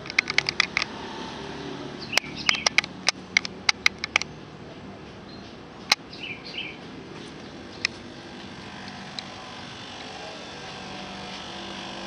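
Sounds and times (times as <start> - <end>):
sharp clicks: 0.0 - 1.0, 2.0 - 4.3, 5.8 - 6.1
air conditioner unit humming: 4.4 - 12.0.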